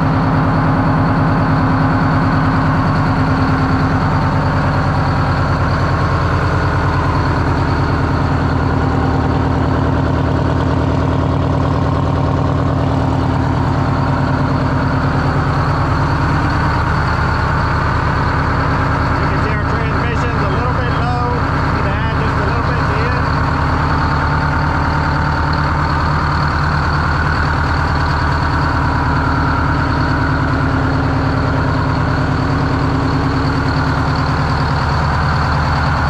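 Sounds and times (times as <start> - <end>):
diesel engine idling: 0.0 - 36.0.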